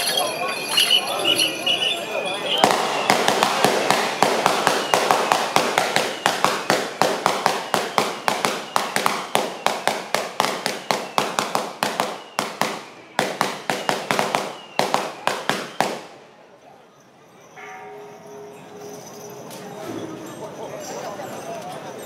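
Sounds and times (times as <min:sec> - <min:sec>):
firecrackers cracking: 0:00.0 - 0:16.3.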